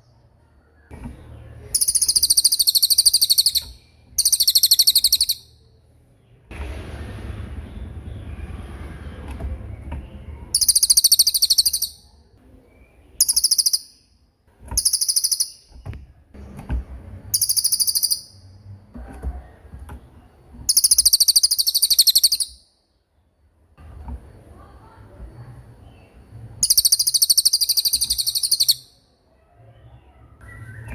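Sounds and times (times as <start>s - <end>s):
songbird rolling trills: 1.6s - 5.5s, 10.5s - 12.1s, 13.0s - 14.0s, 17.3s - 18.5s, 20.7s - 22.6s, 26.6s - 28.9s
low rumble: 5.9s - 10.5s.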